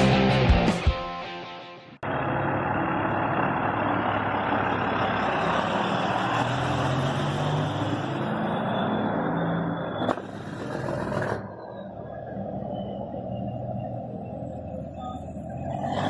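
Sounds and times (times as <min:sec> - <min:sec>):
background music: 0:00.0 - 0:01.9
truck engine humming: 0:02.0 - 0:16.0.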